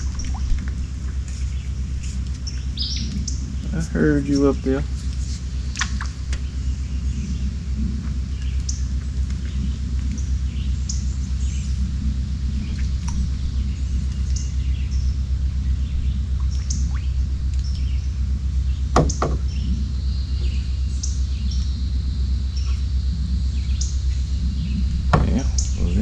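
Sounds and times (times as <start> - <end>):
small birds chirping: 0.0 - 26.0
steady low rumble: 0.0 - 26.0
sharp knocks: 19.0 - 19.4.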